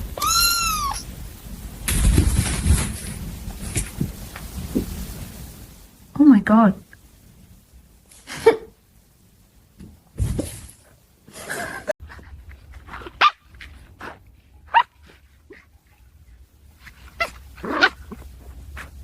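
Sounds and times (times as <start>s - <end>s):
dog barking: 14.7s - 15.6s.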